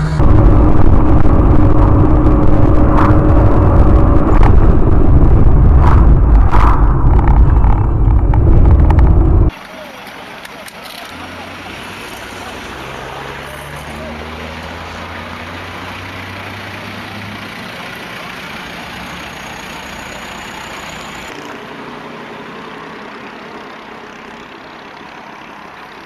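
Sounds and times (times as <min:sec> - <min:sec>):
truck engine humming: 0:00.0 - 0:26.0
road noise hiss: 0:09.4 - 0:26.0.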